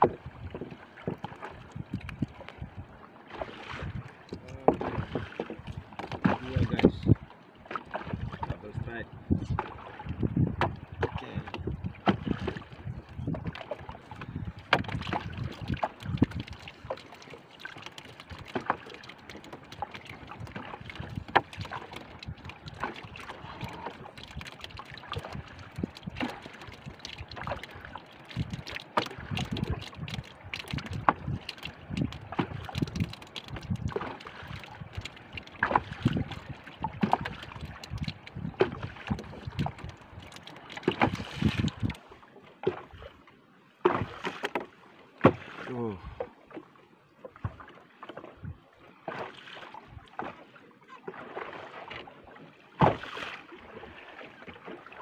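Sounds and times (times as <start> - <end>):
water slapping boat hull: 0.0 - 55.0.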